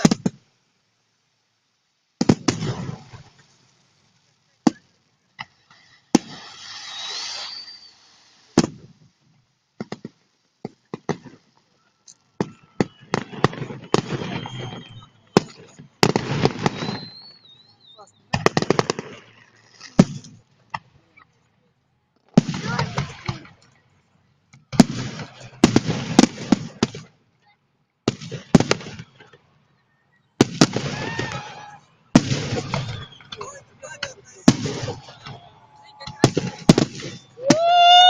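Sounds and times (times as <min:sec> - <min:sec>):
firework bangs: 0:00.0 - 0:00.5, 0:02.2 - 0:21.0, 0:22.3 - 0:23.7, 0:24.7 - 0:27.2, 0:28.0 - 0:29.4, 0:30.4 - 0:38.0
firework crackling: 0:00.0 - 0:21.4, 0:22.2 - 0:27.3, 0:28.0 - 0:29.4, 0:30.4 - 0:38.0
firework whistles: 0:02.2 - 0:03.8, 0:04.7 - 0:09.1, 0:11.0 - 0:20.4, 0:28.3 - 0:38.0.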